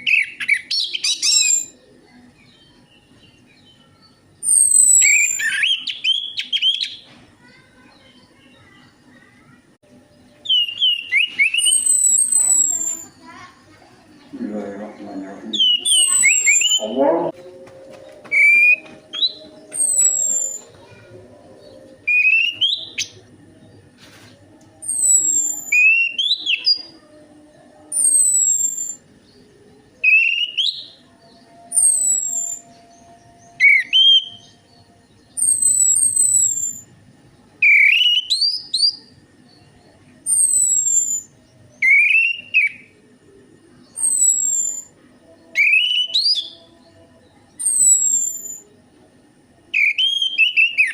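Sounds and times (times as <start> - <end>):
thrush singing whistled phrases: 4.4 - 7.0, 10.4 - 13.2, 15.5 - 17.1, 18.3 - 20.7, 22.0 - 23.2, 24.8 - 26.9, 27.9 - 29.0, 30.0 - 31.0, 31.7 - 34.5, 35.3 - 36.9, 37.6 - 39.0, 40.3 - 43.0, 44.0 - 46.6, 47.6 - 48.7, 49.7 - 50.9.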